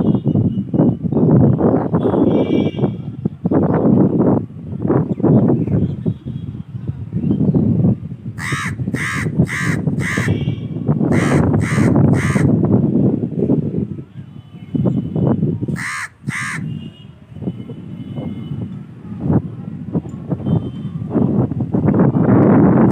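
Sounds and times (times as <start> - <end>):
crow cawing: 8.4 - 10.4, 11.1 - 12.5, 15.8 - 16.7.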